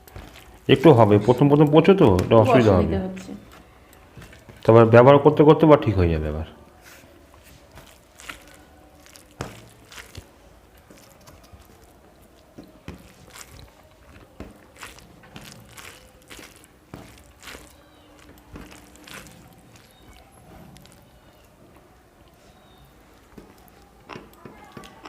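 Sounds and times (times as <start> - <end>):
chewing food: 0.0 - 2.0, 7.1 - 25.0.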